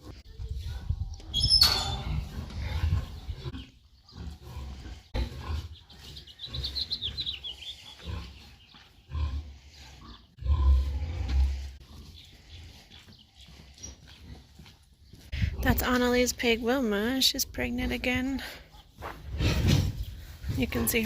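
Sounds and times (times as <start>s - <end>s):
pig grunting: 1.9s - 13.5s.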